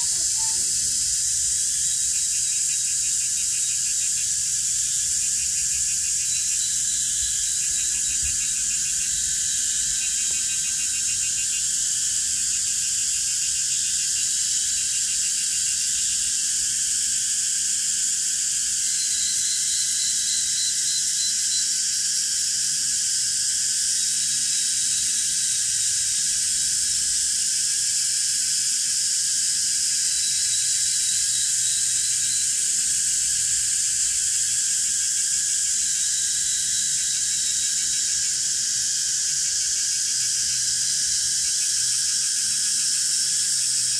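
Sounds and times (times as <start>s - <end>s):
cricket-like trills: 0.0s - 13.8s, 35.9s - 42.9s
insects hissing: 0.0s - 13.8s, 33.8s - 42.6s.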